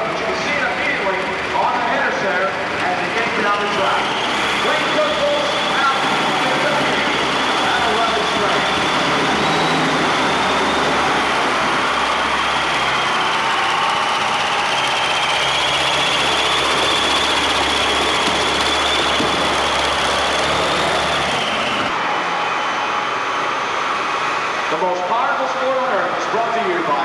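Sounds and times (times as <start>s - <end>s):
tractor engines running under load: 0.0s - 27.0s.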